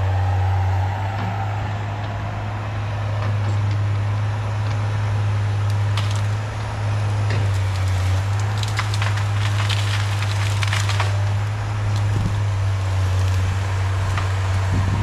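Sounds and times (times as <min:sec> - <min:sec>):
excavator diesel engine running: 0:00.0 - 0:15.0
wood cracking and splintering: 0:04.6 - 0:15.0.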